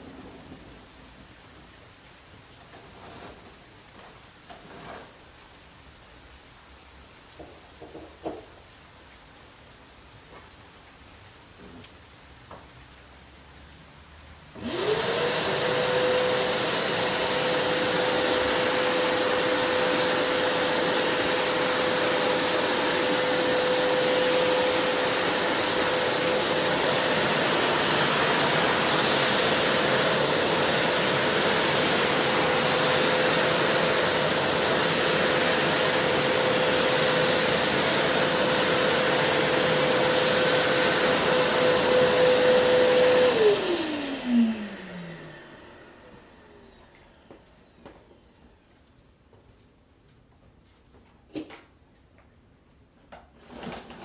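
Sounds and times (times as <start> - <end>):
vacuum cleaner motor whining: 14.6 - 49.4, 53.4 - 54.0.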